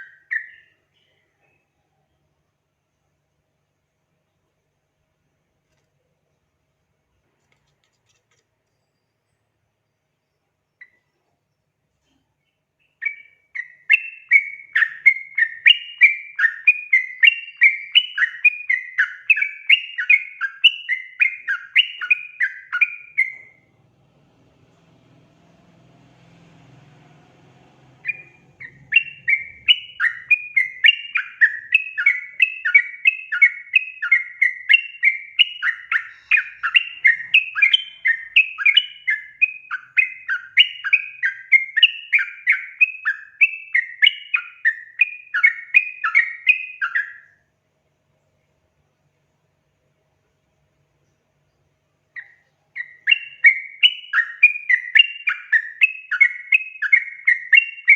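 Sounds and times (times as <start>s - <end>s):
bulbul chattering call: 27.8s - 47.2s.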